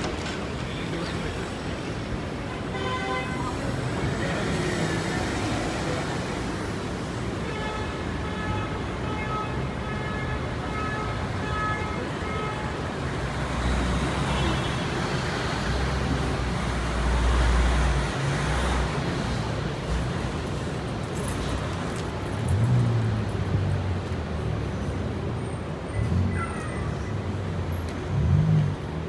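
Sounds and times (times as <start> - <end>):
heavy vehicle engine rumble: 0.0 - 2.7, 13.0 - 29.0
road vehicles passing: 0.0 - 29.0.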